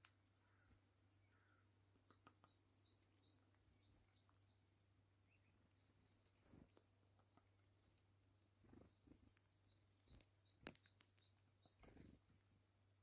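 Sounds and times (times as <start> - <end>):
faint high bird chirps: 0.0 - 12.6
soft ticks: 2.0 - 4.5, 9.3 - 11.8.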